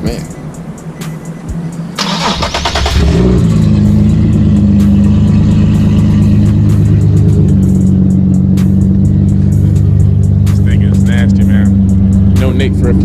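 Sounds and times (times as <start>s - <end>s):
engine cranking: 2.0s - 3.5s
loud engine idling: 2.0s - 13.0s.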